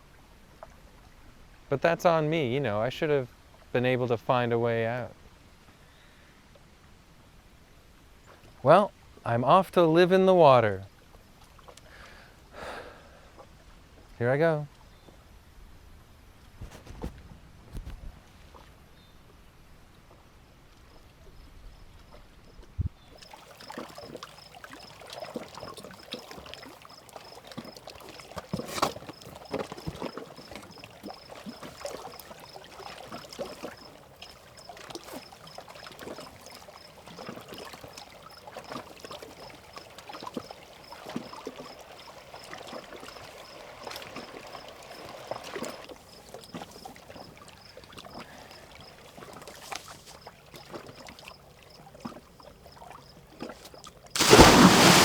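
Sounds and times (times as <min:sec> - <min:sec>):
water splashing and lapping: 0:11.0 - 0:12.2, 0:23.2 - 0:55.0.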